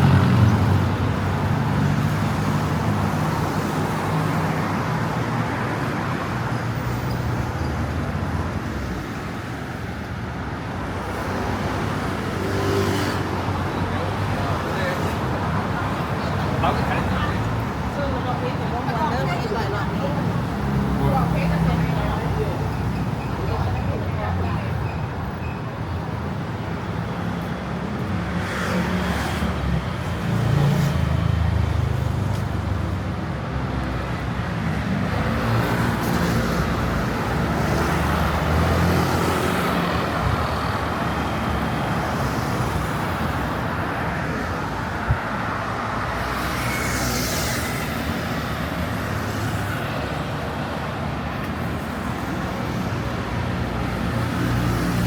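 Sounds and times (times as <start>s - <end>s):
street traffic engines: 0.0s - 55.0s
vehicles passing close: 0.0s - 55.0s.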